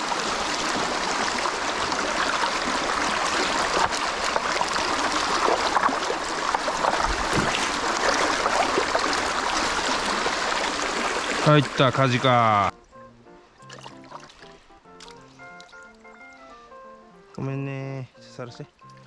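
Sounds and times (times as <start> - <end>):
mountain stream flowing: 0.0 - 12.7
hand net splashing in water: 1.8 - 11.5.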